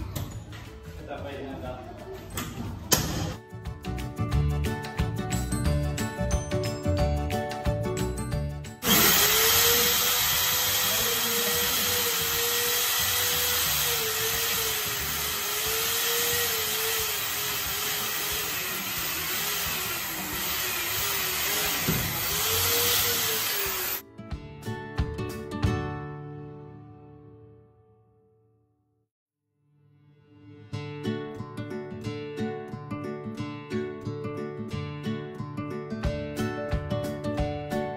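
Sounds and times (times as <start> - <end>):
electric drill whining: 8.8 - 24.0.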